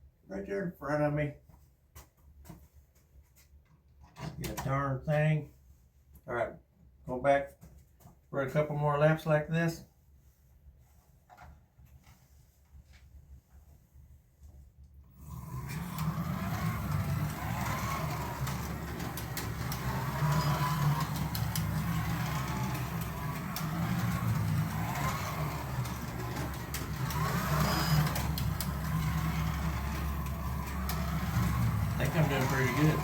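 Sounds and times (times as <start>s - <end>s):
slot car motor whine: 15.1s - 33.0s.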